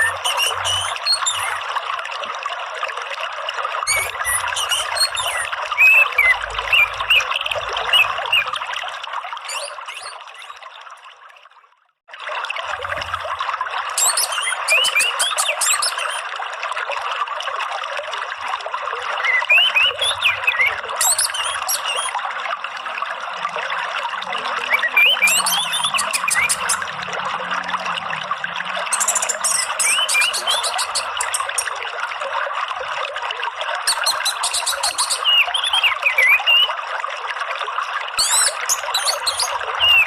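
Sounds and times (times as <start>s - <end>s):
songbird chirping and trilling: 0.0s - 1.7s, 3.9s - 8.6s, 9.5s - 10.6s, 14.0s - 16.2s, 19.2s - 22.2s, 24.7s - 26.9s, 28.9s - 31.7s, 33.9s - 36.7s, 38.2s - 40.0s
trickling water: 0.0s - 40.0s.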